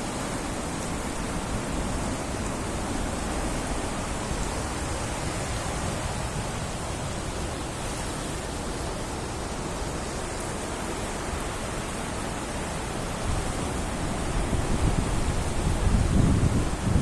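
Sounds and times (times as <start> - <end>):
fast river water rushing: 0.0 - 17.0.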